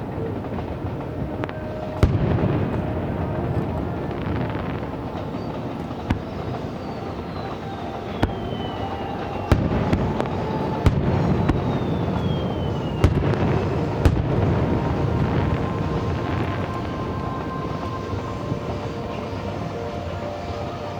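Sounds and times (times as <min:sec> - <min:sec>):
firework shells bursting: 0:00.0 - 0:18.2
falling firework whistles: 0:00.0 - 0:20.9
firework rumble and crackle: 0:00.0 - 0:20.9.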